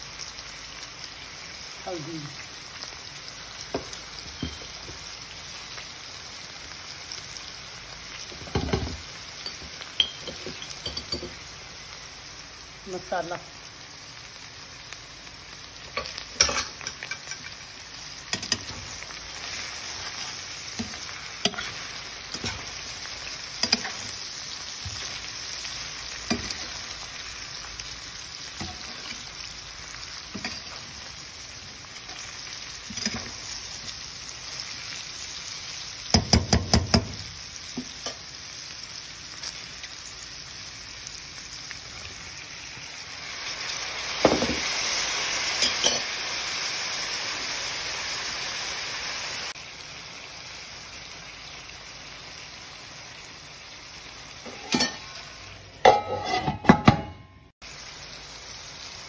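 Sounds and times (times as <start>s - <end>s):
okra sizzling in oil: 0.0s - 56.4s, 57.6s - 59.0s
utensil knocking and scraping pan: 55.9s - 57.2s.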